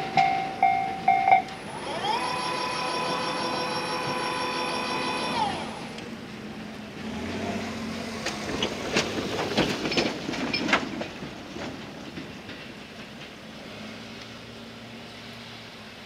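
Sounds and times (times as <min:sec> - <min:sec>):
train rumble: 0:00.0 - 0:16.0
train wheels clacking over rail joints: 0:08.0 - 0:14.6.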